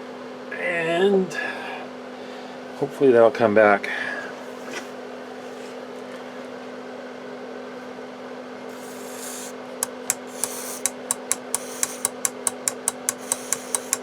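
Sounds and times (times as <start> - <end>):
rapid sharp switch clicks: 8.8 - 14.0.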